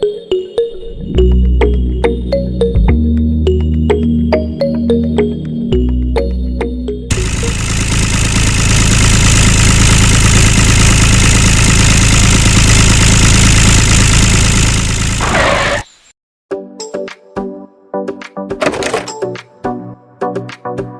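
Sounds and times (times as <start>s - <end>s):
engine running steadily: 7.1s - 15.4s.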